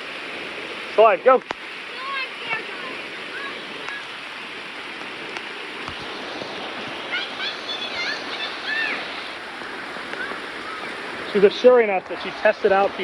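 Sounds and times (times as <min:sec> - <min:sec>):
creek water rushing over rocks: 0:00.0 - 0:13.0
rain: 0:00.0 - 0:13.0
short high-pitched calls: 0:07.0 - 0:11.3.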